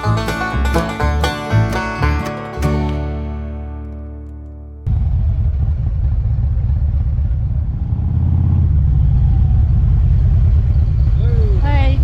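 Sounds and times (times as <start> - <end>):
motorcycle engine running: 4.9 - 12.0.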